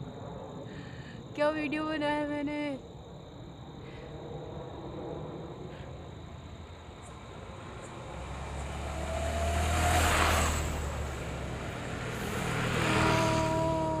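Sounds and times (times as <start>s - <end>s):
vehicle passing by: 5.3s - 14.0s.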